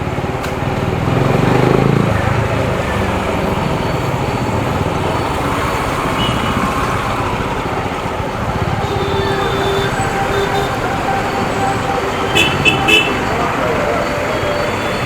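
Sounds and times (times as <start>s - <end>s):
other vehicle engines: 0.0s - 15.0s
wind and road noise: 0.0s - 15.0s.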